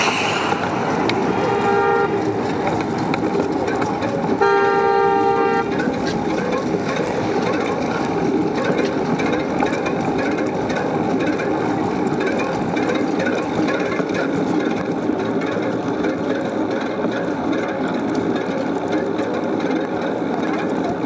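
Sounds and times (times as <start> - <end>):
traffic rushing: 0.0 - 15.9
vehicle horn honking: 1.4 - 2.2, 4.4 - 5.7.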